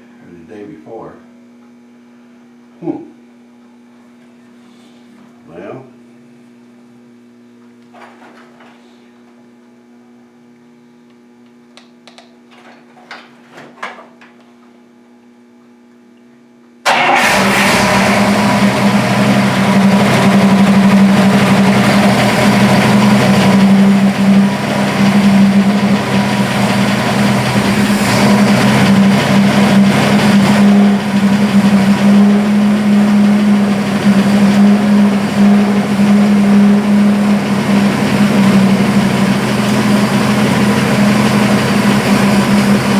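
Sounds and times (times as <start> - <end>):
car engine running: 17.2 - 42.9.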